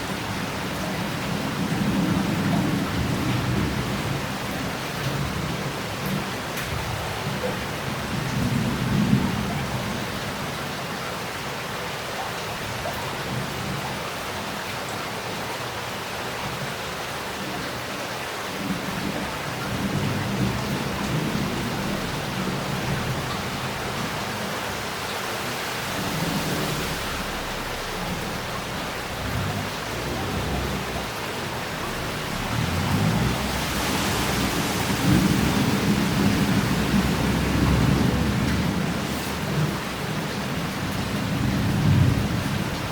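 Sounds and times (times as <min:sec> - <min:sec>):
heavy rain pouring: 0:00.0 - 0:42.9
water running off roof tiles: 0:18.9 - 0:42.9
low thunder rolling: 0:25.8 - 0:42.9.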